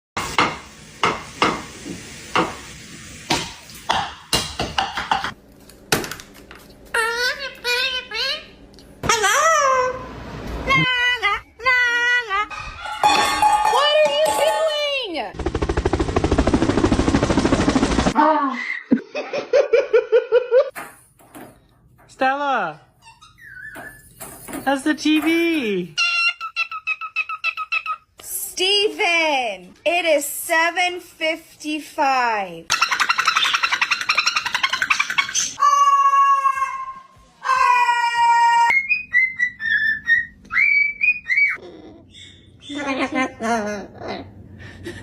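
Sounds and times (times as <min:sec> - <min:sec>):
fast loud rattle: 0:15.4 - 0:18.2.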